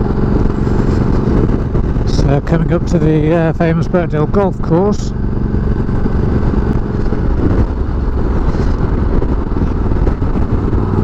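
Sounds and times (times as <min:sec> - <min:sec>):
motorcycle engine running: 0:00.0 - 0:11.0
wind rumble on microphone: 0:00.0 - 0:11.0.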